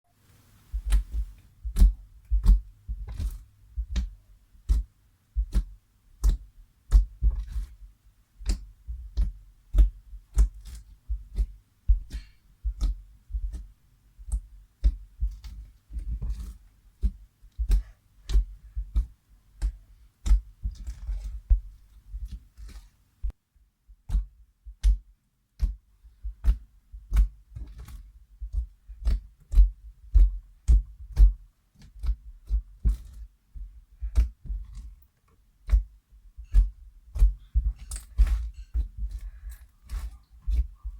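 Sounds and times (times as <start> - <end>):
slime with beads clicking and popping: 0.7 - 7.8, 8.4 - 22.9, 24.0 - 33.3, 34.0 - 40.9.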